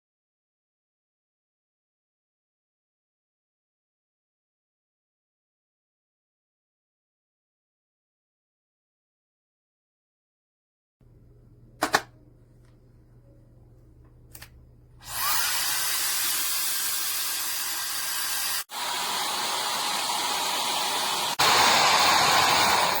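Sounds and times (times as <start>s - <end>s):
hair dryer switch clicks: 11.8s - 12.1s
hair dryer blowing air: 15.0s - 23.0s.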